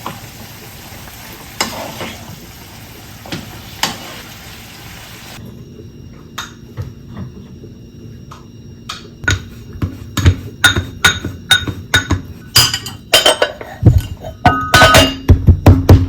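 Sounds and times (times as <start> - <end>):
dishes and glassware clinking: 10.2 - 15.3.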